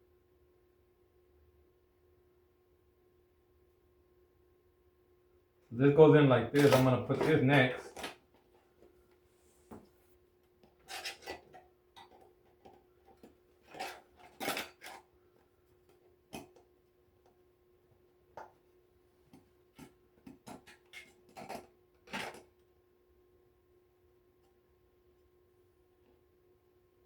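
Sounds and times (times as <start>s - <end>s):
clicks knocks and scrapes: 10.6s - 15.1s, 19.3s - 22.5s.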